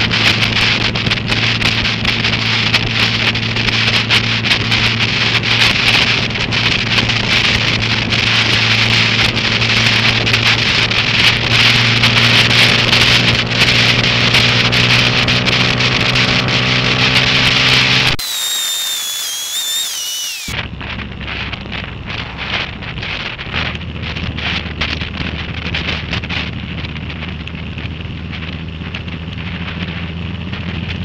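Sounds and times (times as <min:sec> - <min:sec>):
high wavering whistling: 0:18.2 - 0:20.6
wind and rain on microphone: 0:20.7 - 0:31.0.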